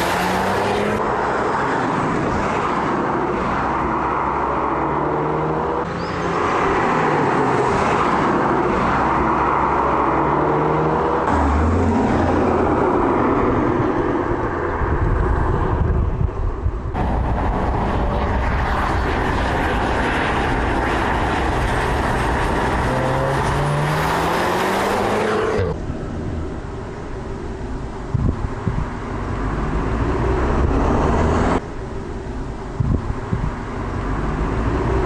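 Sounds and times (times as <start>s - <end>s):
road noise: 0.0s - 35.0s
car engine accelerating: 17.0s - 25.8s.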